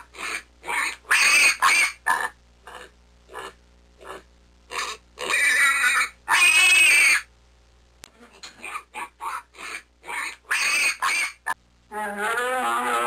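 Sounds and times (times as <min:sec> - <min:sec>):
wild boar piglets squealing: 0:00.2 - 0:02.3, 0:04.7 - 0:07.3, 0:08.6 - 0:11.6.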